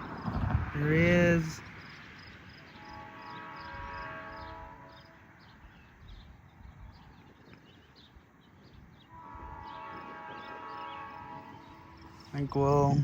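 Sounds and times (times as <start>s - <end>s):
low train rumble: 0.0s - 13.0s
locomotive air horn: 2.7s - 5.6s, 9.1s - 12.8s.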